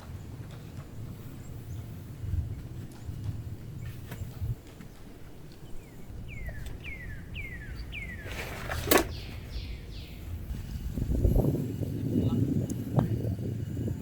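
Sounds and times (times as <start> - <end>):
low rumble of wind: 0.0 - 14.0
bird whistling: 5.8 - 10.3.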